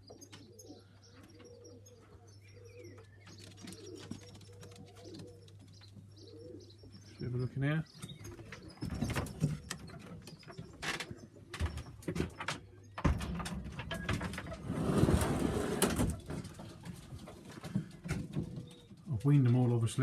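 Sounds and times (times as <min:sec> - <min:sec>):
pigeons cooing: 0:00.0 - 0:19.1
rustling and scraping: 0:08.0 - 0:19.1
knocks and clatter: 0:08.4 - 0:18.8.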